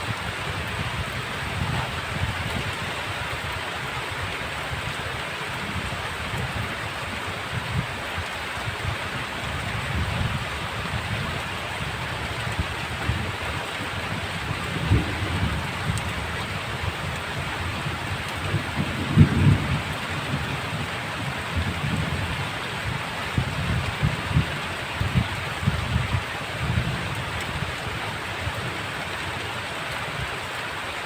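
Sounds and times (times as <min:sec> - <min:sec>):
heavy rain hissing: 0:00.0 - 0:31.0
thunder rumbling: 0:09.9 - 0:28.0.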